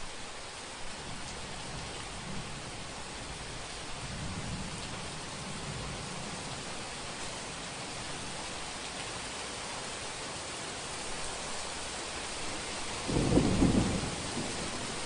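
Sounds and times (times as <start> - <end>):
heavy rain falling: 0.0 - 15.0
distant thunder rumble: 13.0 - 15.0.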